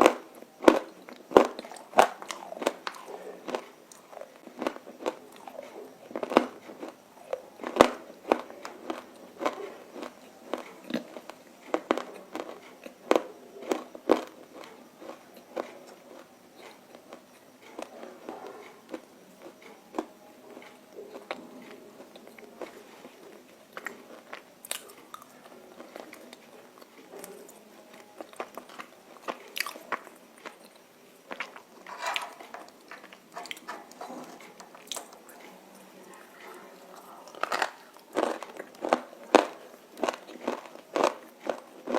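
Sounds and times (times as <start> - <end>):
crunchy food being chewed: 0.0 - 41.9.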